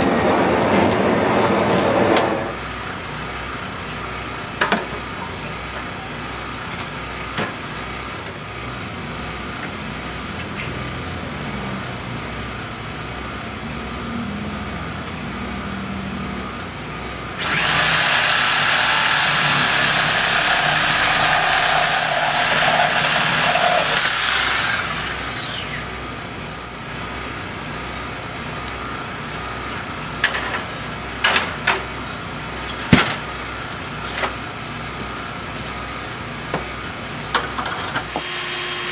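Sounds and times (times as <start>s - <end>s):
engine rumble: 0.0s - 38.2s
small high-speed motor whining: 15.6s - 29.9s, 38.1s - 38.9s.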